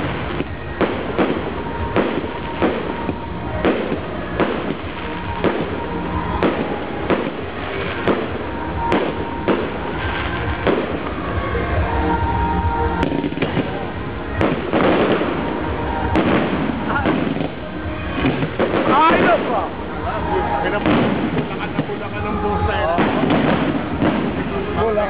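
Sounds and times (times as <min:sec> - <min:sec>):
firework bangs: 0:00.0 - 0:25.0
firework crackle: 0:00.0 - 0:25.0.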